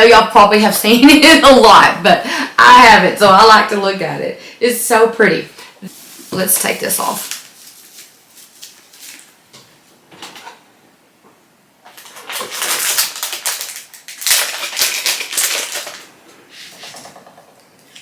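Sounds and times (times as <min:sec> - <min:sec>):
plastic wrapping crinkling: 0:05.9 - 0:09.7, 0:11.8 - 0:16.2.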